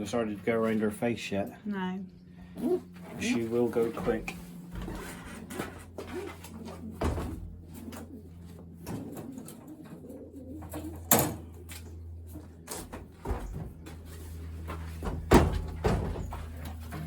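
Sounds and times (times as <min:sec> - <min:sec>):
pigeons cooing: 0:02.3 - 0:14.5.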